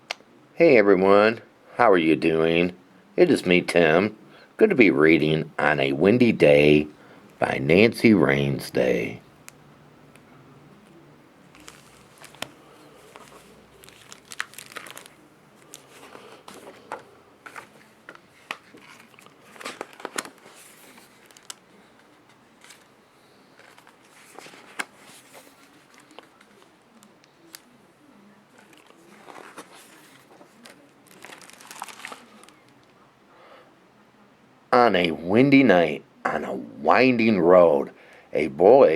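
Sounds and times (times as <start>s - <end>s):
paper crinkling and rustling: 10.8s - 27.8s, 28.5s - 32.9s.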